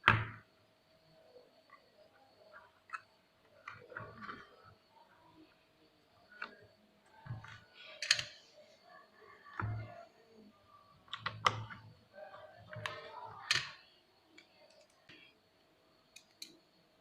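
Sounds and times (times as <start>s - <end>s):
plastic parts clicking and knocking: 7.2s - 8.5s, 11.1s - 15.2s.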